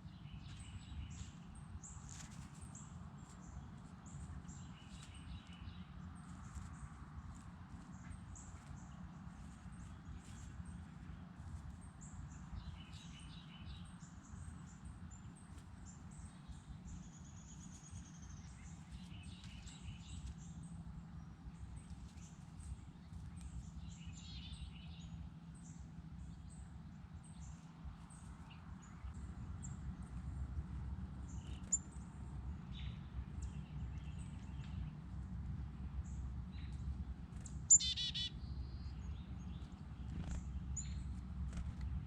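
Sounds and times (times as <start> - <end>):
low outdoor rumble: 0.0 - 42.0
songbirds chirping: 0.0 - 42.0
bird trill: 37.7 - 38.8.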